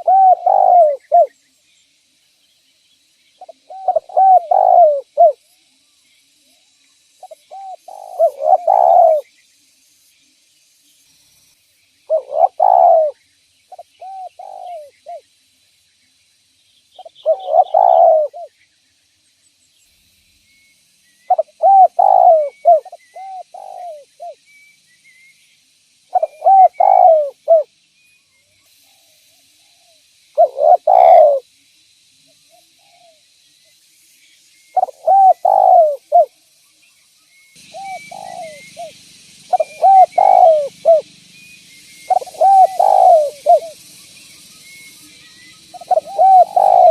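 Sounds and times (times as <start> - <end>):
dove cooing: 0.0 - 1.4, 3.4 - 5.4, 7.2 - 9.3, 12.1 - 15.2, 17.0 - 18.5, 21.3 - 24.4, 26.1 - 27.7, 30.4 - 31.4, 34.8 - 36.3, 37.6 - 41.1, 42.1 - 43.8, 45.7 - 46.9
small birds chirping: 0.0 - 46.9.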